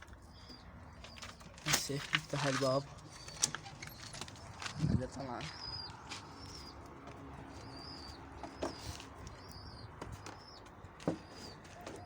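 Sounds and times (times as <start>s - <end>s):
pigeons cooing: 7.4s - 12.0s.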